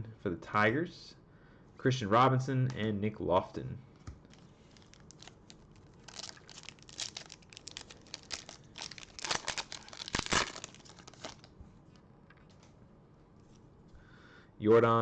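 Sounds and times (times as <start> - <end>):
plastic wrapper tearing and crinkling: 4.2 - 11.6.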